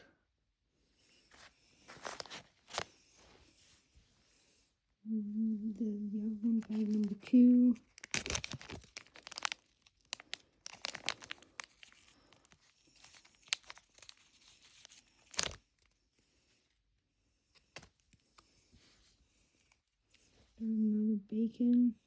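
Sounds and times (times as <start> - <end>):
plastic bag crinkling and tearing: 1.9 - 2.9, 6.5 - 15.9.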